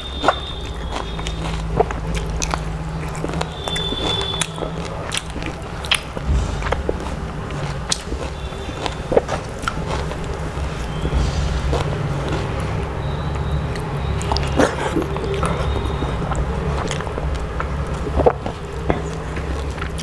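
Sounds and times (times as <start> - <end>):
chewing and mouth clicks: 0.0 - 20.0
fingers squishing mashed food: 0.0 - 20.0
steady low hum: 0.0 - 20.0.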